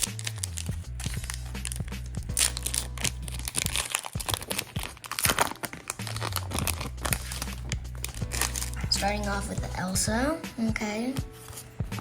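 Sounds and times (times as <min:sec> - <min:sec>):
foil pack crinkling and tearing: 0:00.0 - 0:09.0.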